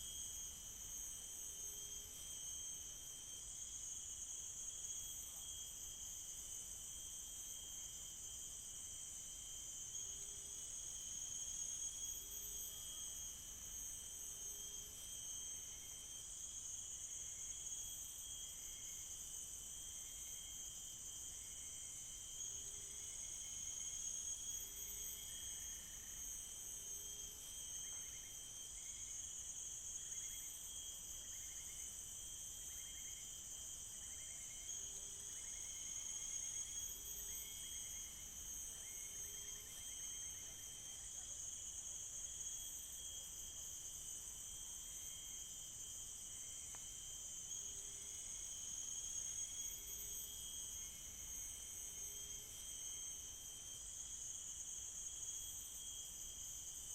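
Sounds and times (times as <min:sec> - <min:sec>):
insect chorus drone: 0:00.0 - 0:56.9.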